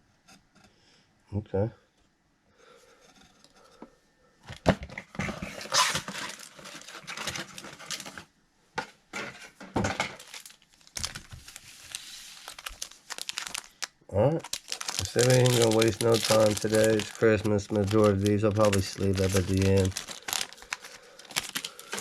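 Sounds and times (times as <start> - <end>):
plastic wrappers tearing and crinkling: 5.6 - 8.2, 10.0 - 22.0.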